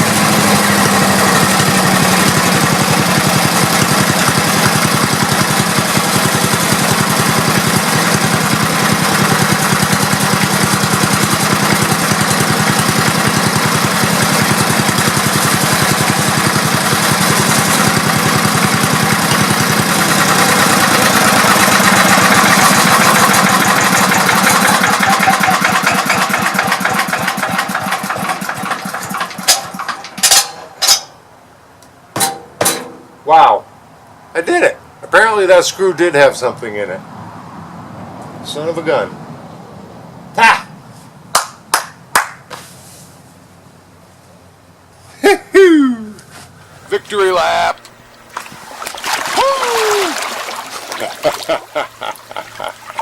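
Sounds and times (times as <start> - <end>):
small gasoline engine running: 0.0 - 30.4, 49.3 - 53.0
engine clunks: 0.0 - 31.2, 31.8 - 33.2.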